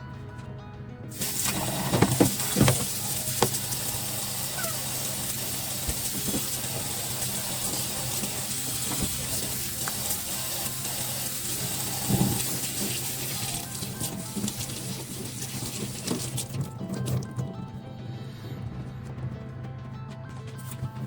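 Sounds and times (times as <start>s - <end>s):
tap water running into sink: 1.2s - 17.6s.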